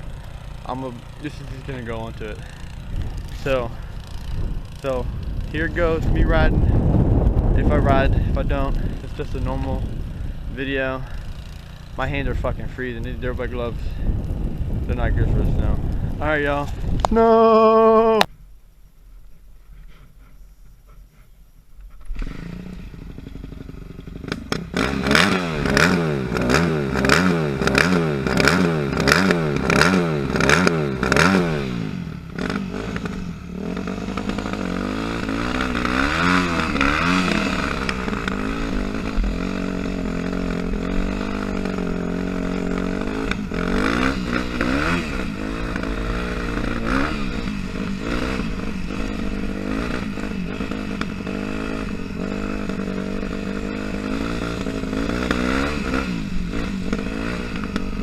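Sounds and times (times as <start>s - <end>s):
dirt bike engine revving: 0.0s - 18.3s, 22.0s - 58.0s.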